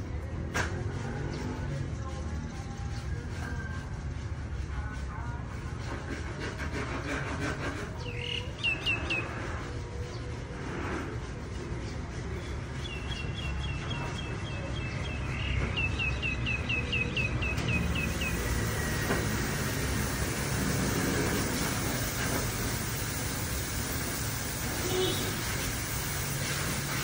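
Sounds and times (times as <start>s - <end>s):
small bird singing chirps: 8.0s - 9.3s, 12.4s - 19.0s.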